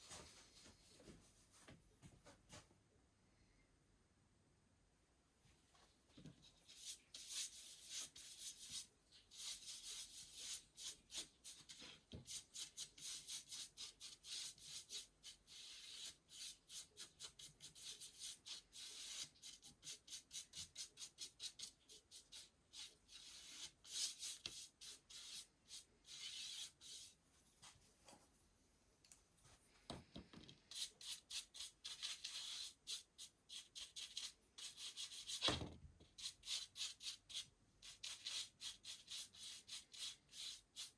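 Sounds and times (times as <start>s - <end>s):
paintbrush stroking wood: 6.6s - 27.7s, 30.7s - 35.5s.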